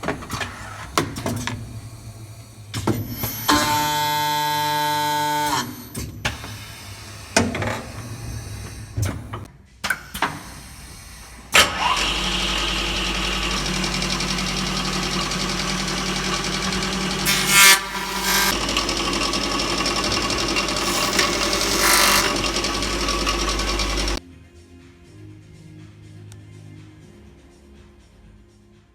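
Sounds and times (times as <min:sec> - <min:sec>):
machine motors humming: 0:11.3 - 0:24.2
harsh cutting noise: 0:11.8 - 0:24.2.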